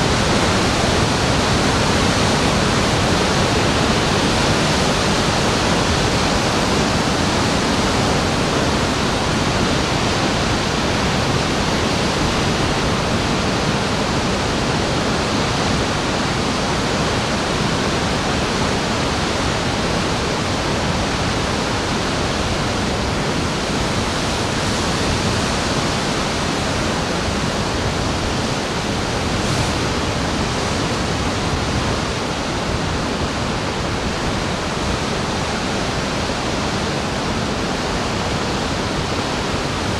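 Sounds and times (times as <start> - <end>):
ocean surf roaring: 0.0 - 39.9.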